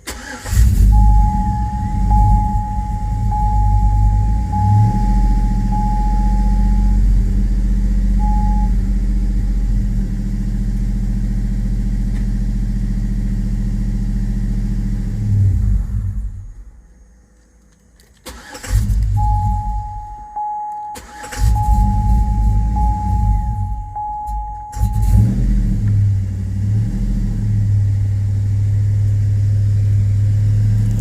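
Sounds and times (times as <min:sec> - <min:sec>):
engine cranking and starting: 0:00.0 - 0:02.3, 0:18.0 - 0:19.6, 0:20.9 - 0:26.0
car engine idling: 0:00.0 - 0:31.0
high beep: 0:00.8 - 0:07.1, 0:08.2 - 0:08.8, 0:19.2 - 0:25.4.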